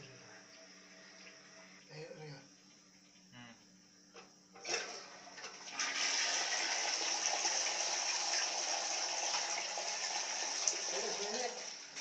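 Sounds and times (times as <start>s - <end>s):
toilet flushing: 4.6s - 12.0s.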